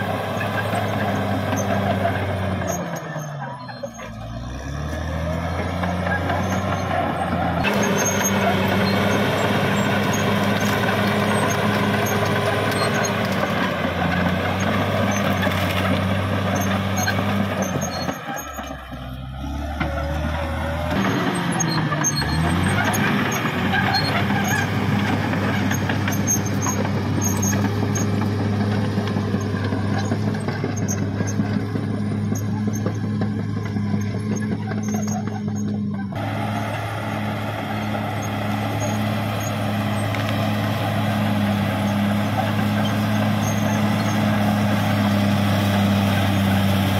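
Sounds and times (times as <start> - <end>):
bulldozer diesel engine: 0.0 - 46.9
steel tracks clanking and squealing: 0.0 - 46.9.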